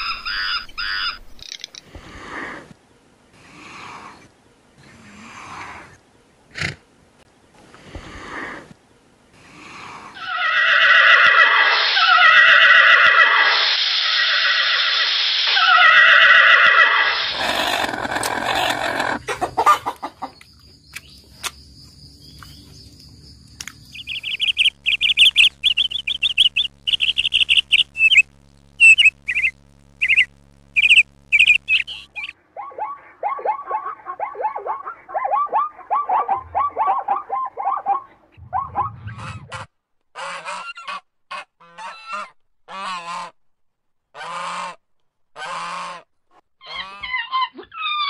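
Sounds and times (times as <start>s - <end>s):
long falling bird calls: 23.8s - 32.4s
short high bird chirps: 23.9s - 32.4s.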